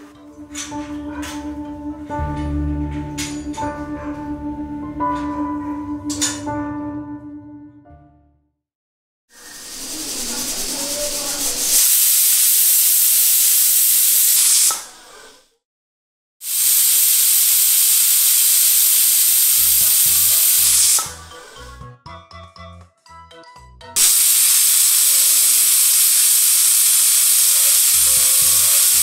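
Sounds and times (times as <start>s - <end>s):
light music: 0.0s - 8.4s, 19.5s - 25.3s
pressure cooker whistle hissing: 9.3s - 15.4s, 16.4s - 21.6s, 24.0s - 29.0s.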